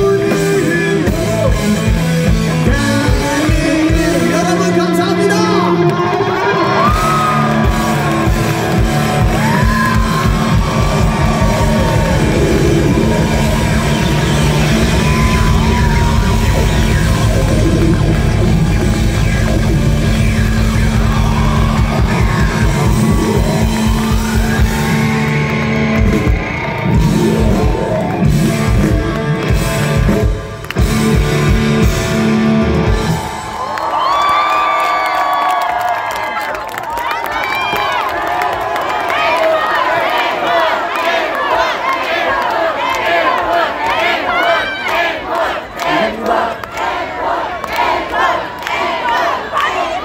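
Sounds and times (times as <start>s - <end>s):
punk rock band playing: 0.0s - 33.6s.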